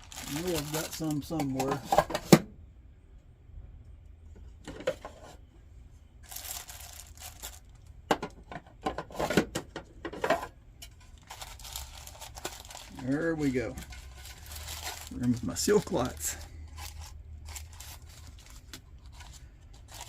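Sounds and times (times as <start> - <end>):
paper and cardboard rustling: 0.0 - 2.2, 11.0 - 20.0.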